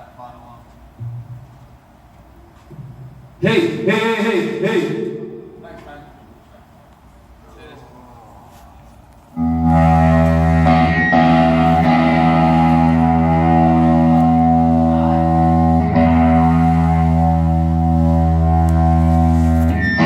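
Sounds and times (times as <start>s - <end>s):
electric guitar chord ringing: 9.4s - 20.0s.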